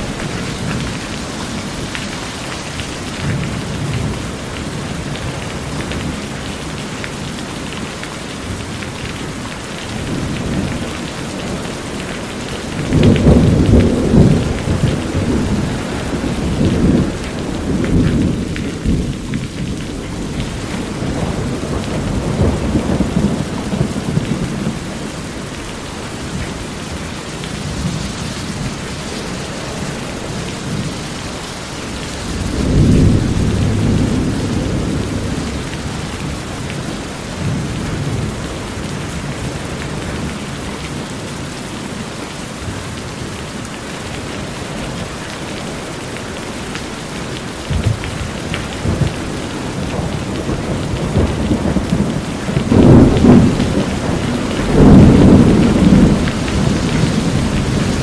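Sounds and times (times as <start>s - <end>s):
rain on a corrugated roof: 0.0s - 58.0s
water running off roof: 0.0s - 58.0s
rolling thunder: 9.9s - 25.6s, 31.9s - 40.3s, 47.6s - 58.0s.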